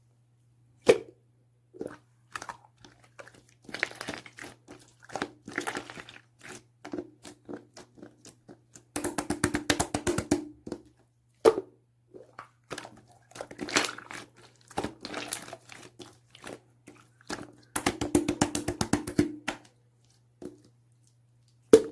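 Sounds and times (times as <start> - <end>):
slime squished by hand: 12.3 - 19.7.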